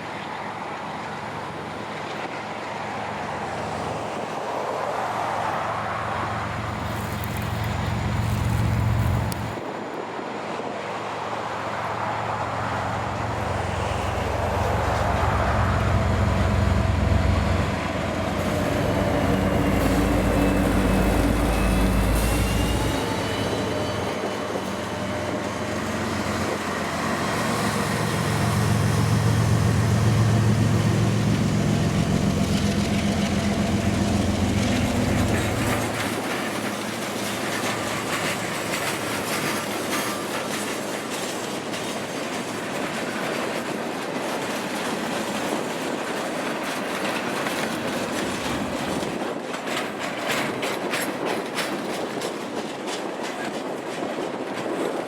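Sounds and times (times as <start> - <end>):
diesel locomotive engine drone: 0.0 - 54.8
train wheels clacking over rail joints: 13.4 - 55.0.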